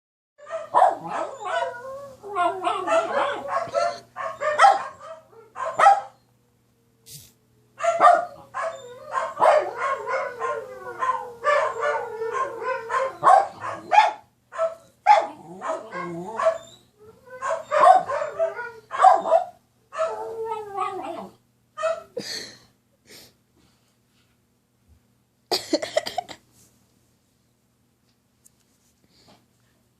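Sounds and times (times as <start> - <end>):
dog barking yipping and whining: 0.4 - 6.2, 7.8 - 22.2.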